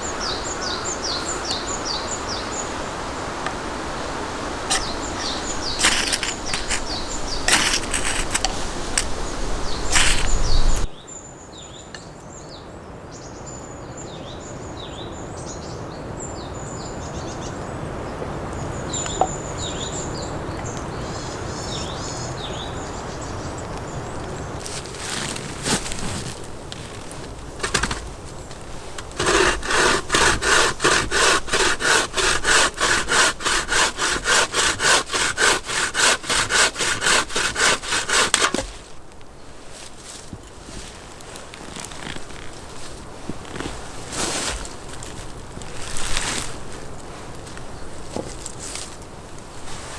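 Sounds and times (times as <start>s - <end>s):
small birds chirping: 0.0s - 3.8s, 4.5s - 29.2s
wood cracking and splintering: 4.7s - 9.1s, 9.9s - 10.4s, 24.6s - 39.2s.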